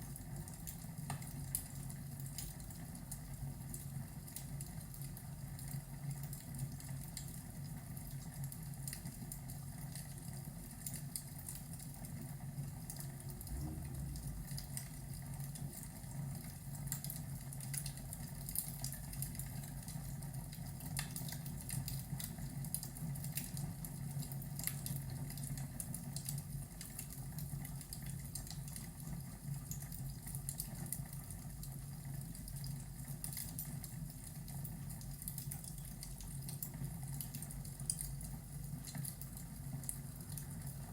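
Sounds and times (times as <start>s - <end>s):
rain rushing: 12.7s - 16.2s.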